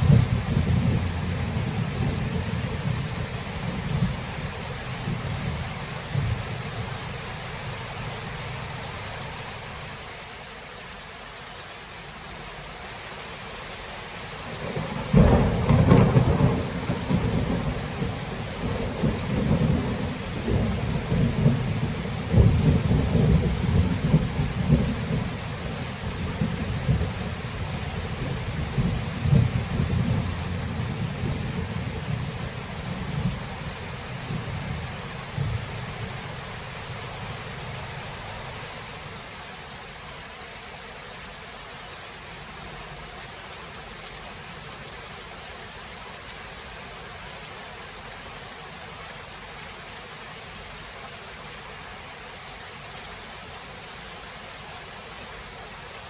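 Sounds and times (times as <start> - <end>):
sharp thunderclap: 0.0 - 2.5, 14.6 - 25.3, 26.2 - 32.2
rumbling thunder: 0.0 - 4.3, 14.5 - 36.2
steady rain hiss: 0.0 - 56.0.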